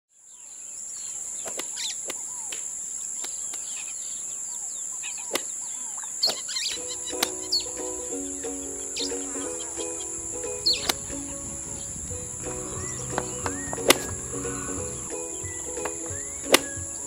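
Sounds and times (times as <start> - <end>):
birds chirping and calling: 0.4 - 2.6, 3.2 - 17.0
music with held notes: 6.8 - 17.0
high-pitched hum: 9.3 - 17.0.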